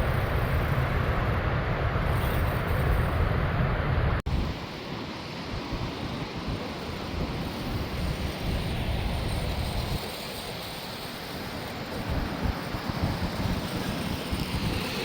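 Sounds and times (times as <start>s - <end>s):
wind buffeting microphone: 5.4s - 15.0s.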